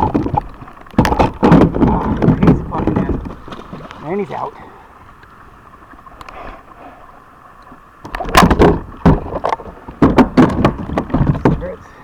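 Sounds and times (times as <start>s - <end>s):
knocks and thumps on kayak hull: 0.0s - 4.5s, 8.0s - 12.0s
low steady background noise: 0.0s - 12.0s.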